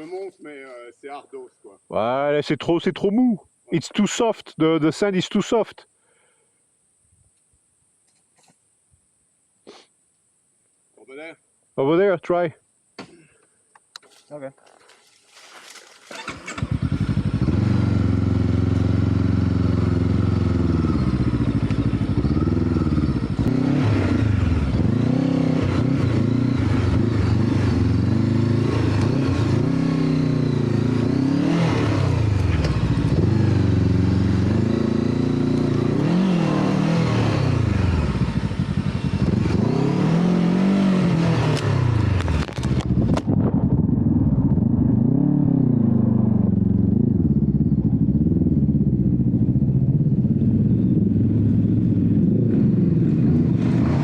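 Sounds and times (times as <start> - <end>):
motorcycle engine revving: 16.0 - 54.0.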